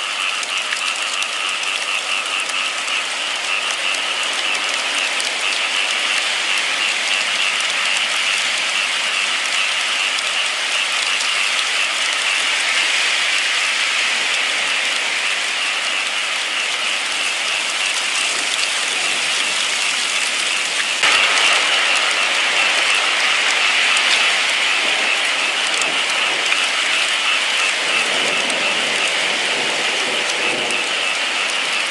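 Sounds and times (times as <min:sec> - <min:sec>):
steady rainfall: 0:00.0 - 0:31.9.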